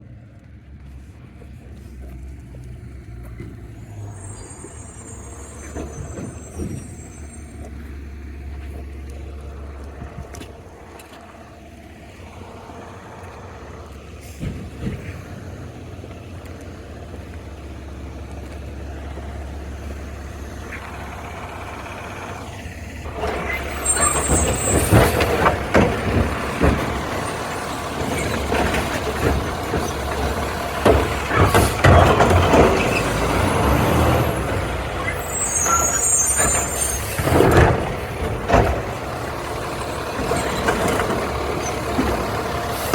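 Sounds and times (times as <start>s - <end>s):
truck engine rumbling: 0.0s - 42.9s
high squeal: 3.8s - 7.9s, 23.2s - 25.5s, 31.2s - 37.7s
clattering knocks: 23.1s - 33.3s.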